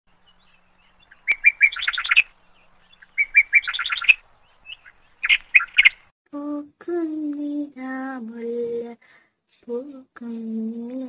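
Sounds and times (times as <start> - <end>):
songbird singing: 0.1 - 6.1.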